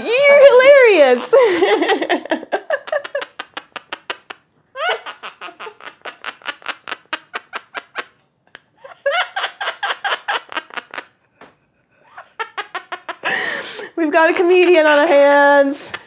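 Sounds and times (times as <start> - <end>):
parrot imitating laughter: 2.9 - 11.2.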